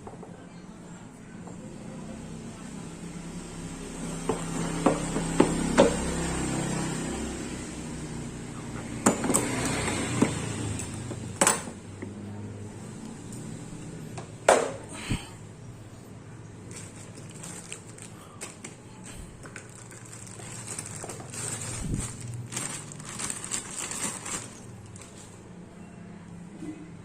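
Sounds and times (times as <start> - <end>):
rustling: 16.6 - 25.4.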